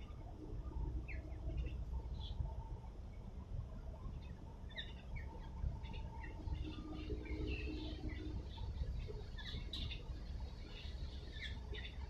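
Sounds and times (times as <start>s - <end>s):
small birds chirping: 4.1s - 12.0s.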